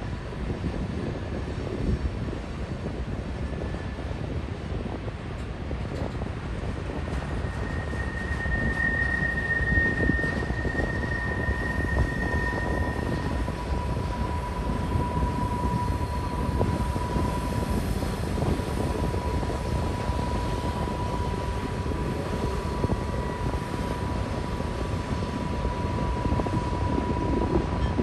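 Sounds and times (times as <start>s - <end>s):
freight train rumbling past: 0.0s - 28.0s
high wheel squeal: 7.1s - 28.0s.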